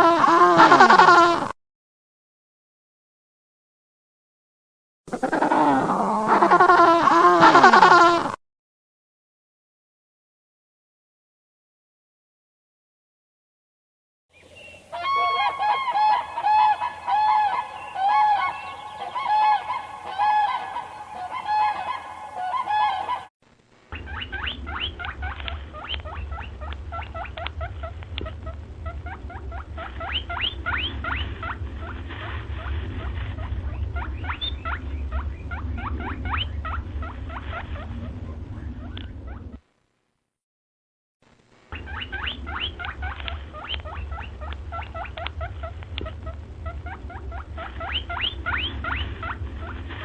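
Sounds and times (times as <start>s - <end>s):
repeated pitched animal calls: 5.1s - 8.4s, 14.4s - 23.3s, 23.9s - 39.6s, 41.7s - 50.0s
low steady hum: 14.4s - 40.1s, 41.2s - 50.0s.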